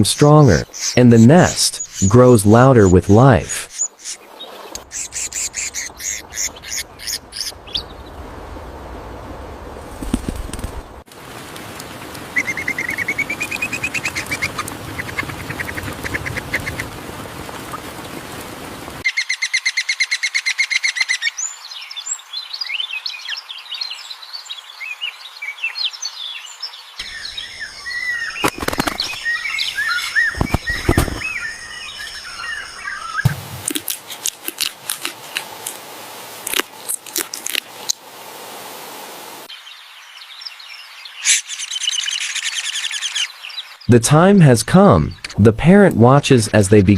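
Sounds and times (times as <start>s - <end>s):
nestlings chirping: 0.0s - 3.0s, 3.6s - 8.2s, 12.3s - 16.9s, 26.8s - 35.8s.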